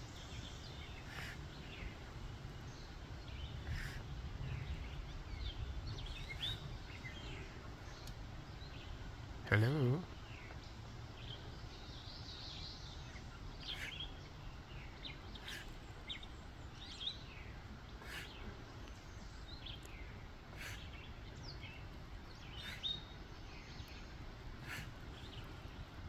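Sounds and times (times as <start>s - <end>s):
low background noise: 0.0s - 26.0s
faint clicks: 8.0s - 8.2s.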